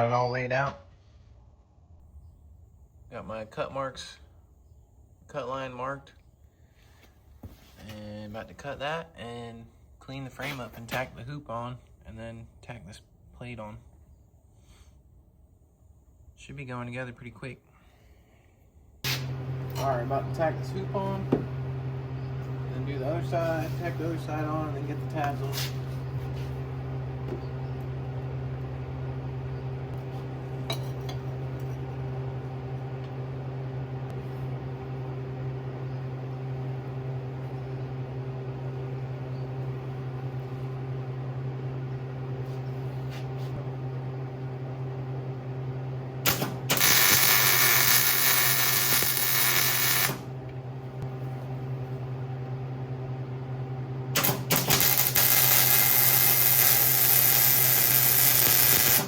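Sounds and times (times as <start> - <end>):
low electrical hum: 0.0 - 59.0
welding arc crackling: 22.4 - 26.9, 46.2 - 50.3, 54.1 - 59.0.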